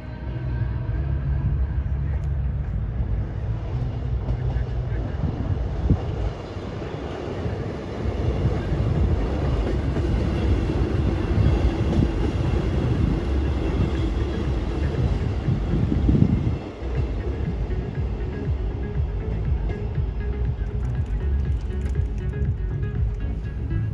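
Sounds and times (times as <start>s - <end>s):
car engine rumbling: 0.0s - 6.4s, 8.3s - 23.9s.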